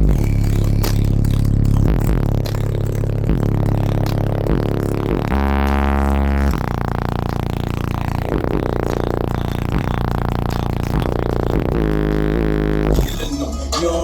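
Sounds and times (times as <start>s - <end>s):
deep bass: 0.0s - 14.0s.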